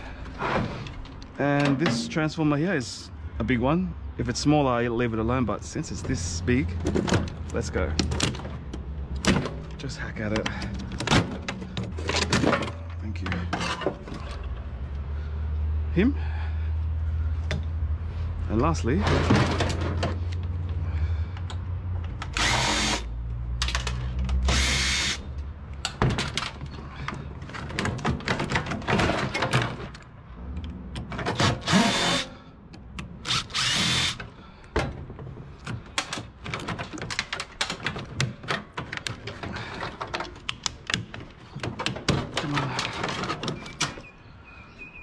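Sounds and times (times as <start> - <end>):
metal knocks and clanks: 1.4 - 2.4, 18.9 - 20.3, 25.8 - 30.0
power drill whirring: 22.3 - 23.1, 24.5 - 25.2, 31.4 - 32.3, 33.2 - 34.2.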